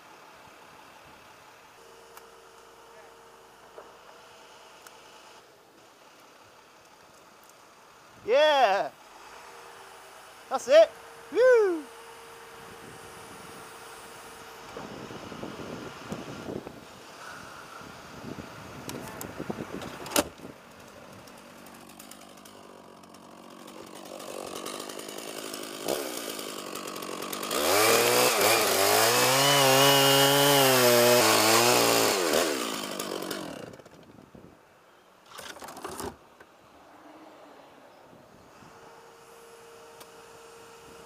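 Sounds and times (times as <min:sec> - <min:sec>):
chainsaw engine revving: 0:21.2 - 0:34.0.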